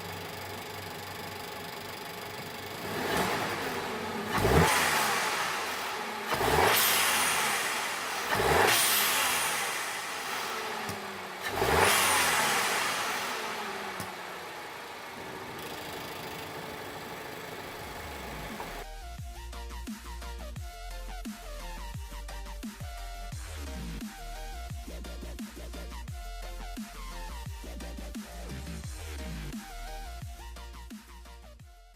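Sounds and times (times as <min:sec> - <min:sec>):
car engine idling and revving: 0:00.0 - 0:18.9
blow-off valve venting: 0:03.0 - 0:18.8.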